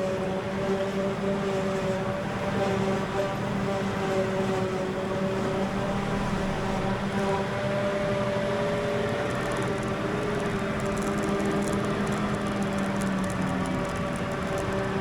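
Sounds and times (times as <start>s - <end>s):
heavy farm machinery engines: 0.0s - 15.0s
faint light ticks: 8.9s - 15.0s.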